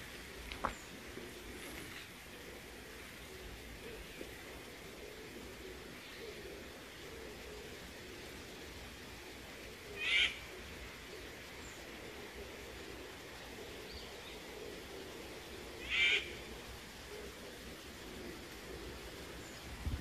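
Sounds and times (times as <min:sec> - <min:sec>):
faint forest background: 0:00.0 - 0:20.0
bird giving sharp calls: 0:10.0 - 0:10.5, 0:15.8 - 0:16.4.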